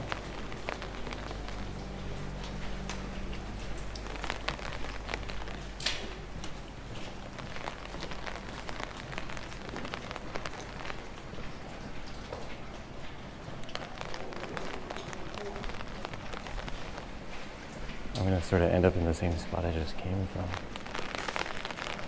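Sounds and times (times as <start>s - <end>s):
steady low rumble: 0.0s - 12.1s
raindrops ticking: 0.0s - 22.0s.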